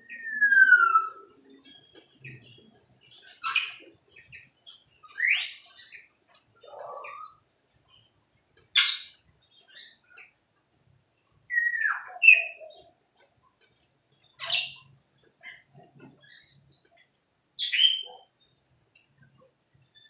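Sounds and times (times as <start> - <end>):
loud sharp bird calls: 0.0 - 8.0, 8.8 - 10.3, 17.6 - 18.4
faint bird chirps: 0.0 - 10.4, 11.1 - 20.0.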